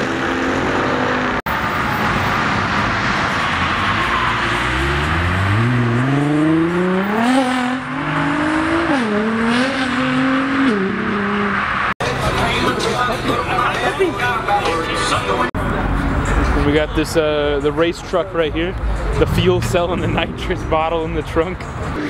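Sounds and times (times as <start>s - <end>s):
car engine accelerating hard: 0.0s - 12.8s.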